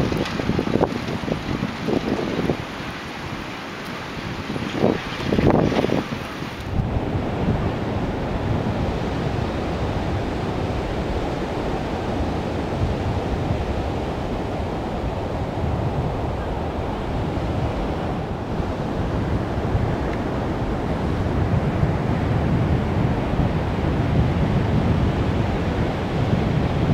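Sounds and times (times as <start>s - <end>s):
ocean surf washing onto beach: 0.0s - 26.9s
wind rumbling on microphone: 0.0s - 26.9s.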